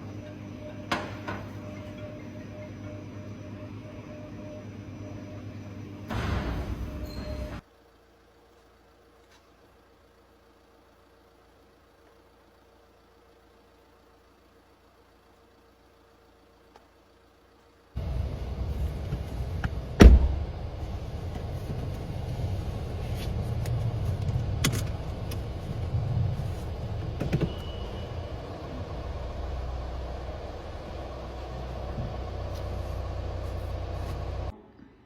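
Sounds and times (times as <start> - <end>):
car door shutting: 18.0 - 20.5
steady low rumble: 18.0 - 34.6.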